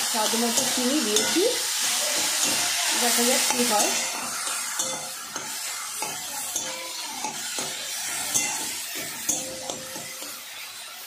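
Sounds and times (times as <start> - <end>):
onions and fish sizzling: 0.0 - 11.0
spatula scraping a wok: 0.0 - 11.0
spatula knocking on pan: 2.1 - 10.4.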